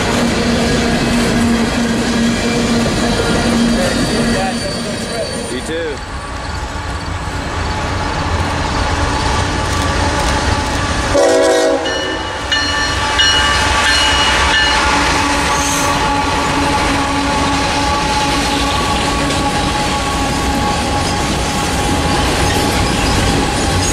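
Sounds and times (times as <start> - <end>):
diesel locomotives rumbling: 0.0 - 23.9
train air horn blasts: 11.1 - 20.9
freight cars clattering on rails: 16.4 - 23.9.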